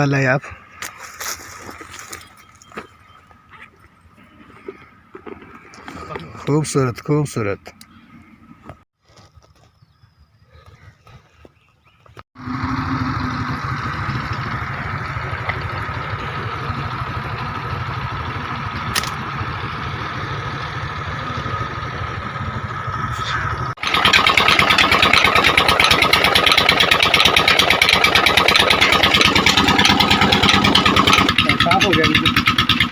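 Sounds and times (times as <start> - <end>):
motor running: 12.4 - 32.9.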